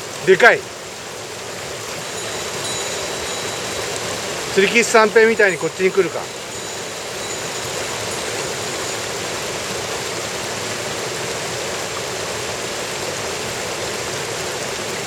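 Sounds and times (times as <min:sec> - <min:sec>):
stream rushing: 0:00.0 - 0:15.0.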